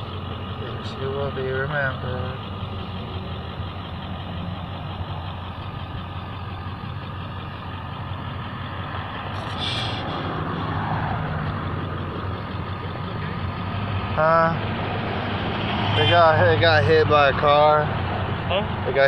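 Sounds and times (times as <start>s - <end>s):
large vehicle engine idling: 0.0s - 19.0s
short hiss: 9.4s - 10.4s.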